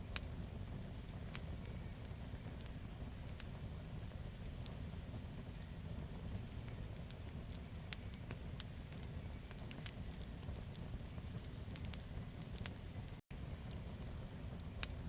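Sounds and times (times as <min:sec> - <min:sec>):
campfire crackling and popping: 0:00.0 - 0:15.0
low rumble of flames: 0:00.0 - 0:15.0.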